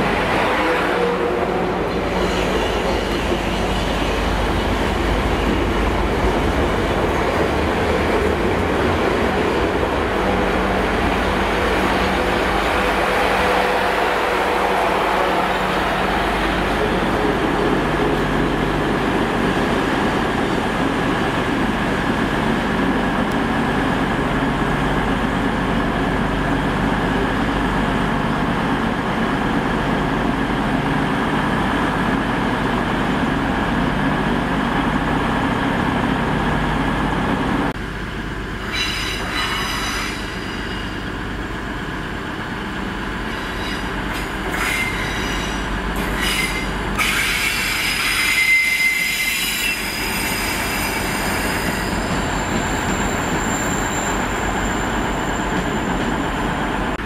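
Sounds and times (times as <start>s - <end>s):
electric train rumbling: 0.0s - 57.0s
steel wheel squeal: 38.7s - 41.0s, 43.3s - 56.0s.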